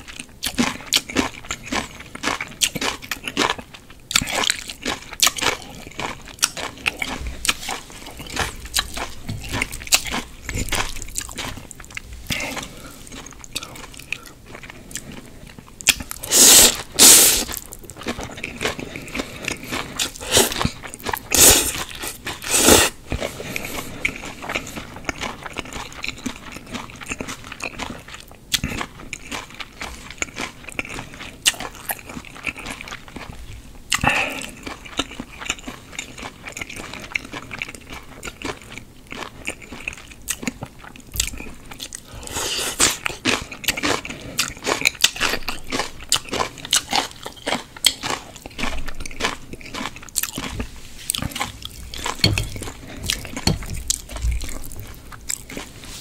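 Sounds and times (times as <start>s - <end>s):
chewing and wet mouth sounds: 0.0s - 56.0s.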